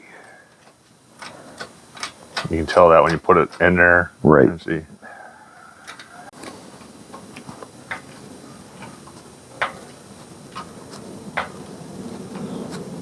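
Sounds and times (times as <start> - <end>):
metal tools clicking and tapping: 0.5 - 3.7.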